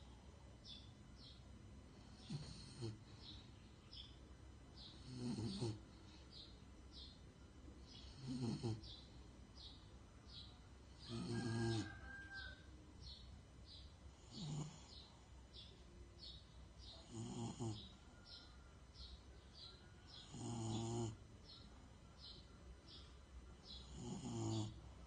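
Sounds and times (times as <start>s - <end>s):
dog snoring: 2.0s - 3.1s, 4.9s - 5.8s, 8.0s - 9.0s, 11.0s - 12.5s, 14.2s - 15.0s, 16.9s - 18.0s, 20.1s - 21.2s, 23.7s - 24.8s.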